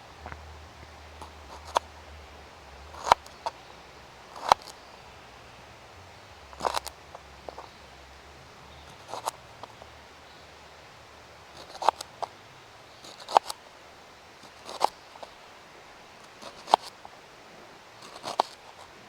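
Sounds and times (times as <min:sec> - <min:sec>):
knife slicing pepper: 0:18.0 - 0:18.7.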